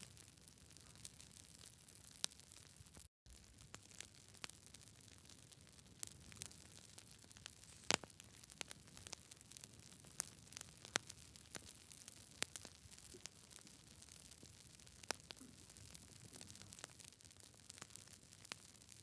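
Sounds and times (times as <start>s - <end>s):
campfire crackling: 0.0s - 19.0s
faint steady hiss: 5.8s - 8.8s.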